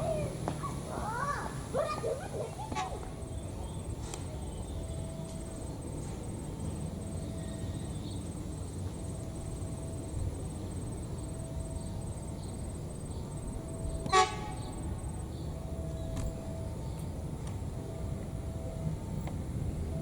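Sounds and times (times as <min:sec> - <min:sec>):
train rumbling on track: 0:00.0 - 0:20.0
train horn toot: 0:14.0 - 0:14.9.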